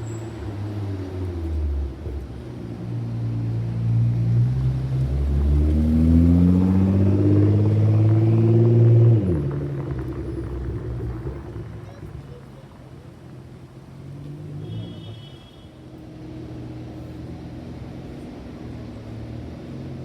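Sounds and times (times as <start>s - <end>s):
car engine accelerating: 0.0s - 14.9s.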